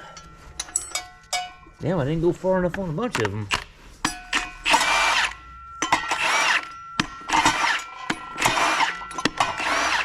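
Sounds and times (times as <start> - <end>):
impact wrench bursts: 4.6 - 10.0.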